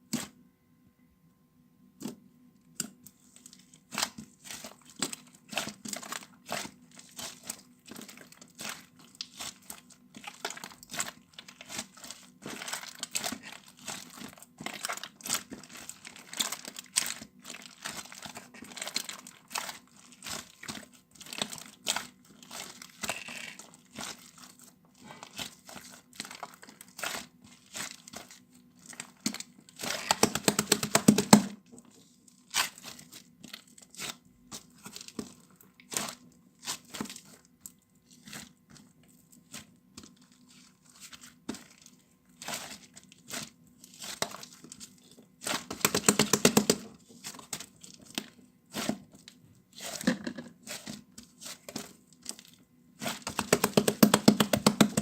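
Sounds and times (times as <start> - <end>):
faint low hum: 0.0 - 30.4
crinkling and crackling: 2.0 - 55.0.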